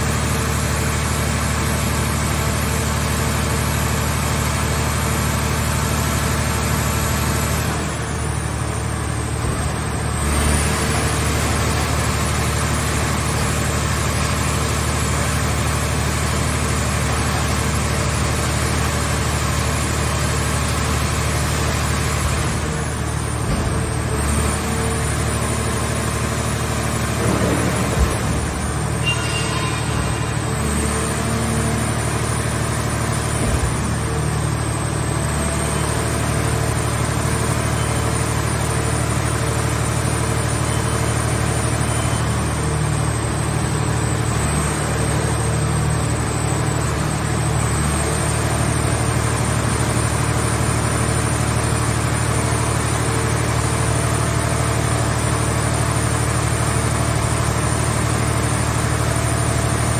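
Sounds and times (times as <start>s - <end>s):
engine humming: 8.1s - 37.4s
faint high whine: 28.6s - 32.2s.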